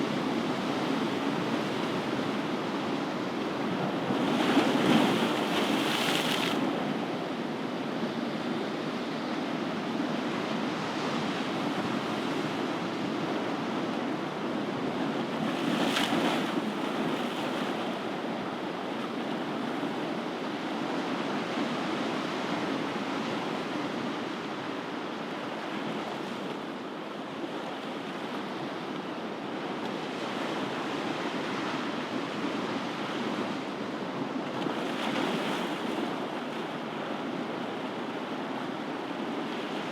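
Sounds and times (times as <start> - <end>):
ocean waves breaking: 0.1 - 7.0.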